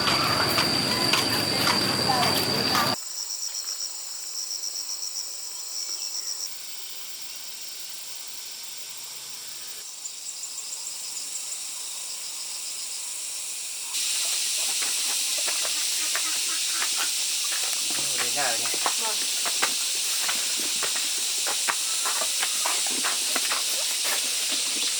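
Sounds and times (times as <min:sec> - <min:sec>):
insects chirping: 0:00.0 - 0:24.9
steady high hiss: 0:09.5 - 0:24.9.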